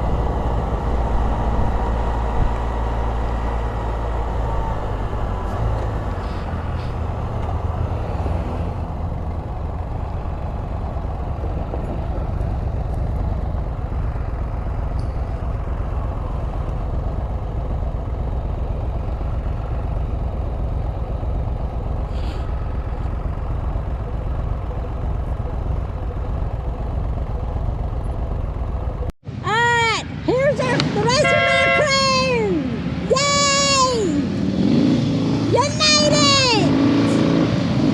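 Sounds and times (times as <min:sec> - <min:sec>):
three-wheeler engine running: 0:00.0 - 0:37.9
wind and road noise: 0:00.0 - 0:37.9.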